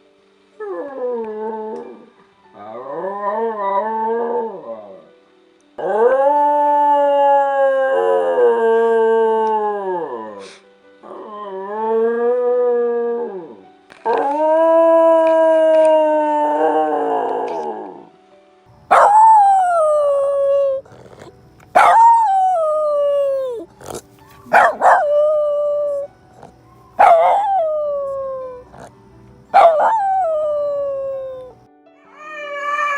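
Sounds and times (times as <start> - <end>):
dogs howling: 11.0 - 18.1, 18.9 - 32.9.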